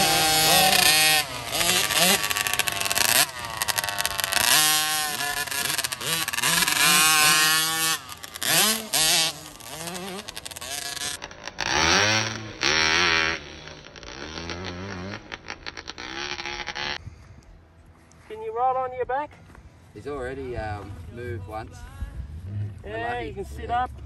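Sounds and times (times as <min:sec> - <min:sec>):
motocross bikes revving: 0:00.0 - 0:17.0, 0:20.0 - 0:24.0.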